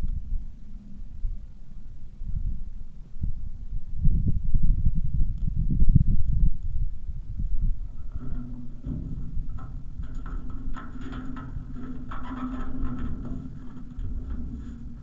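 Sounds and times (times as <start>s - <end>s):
wind on microphone: 0.0s - 15.0s
tyres rumbling: 7.7s - 15.0s
small clicks and rattles: 7.8s - 15.0s.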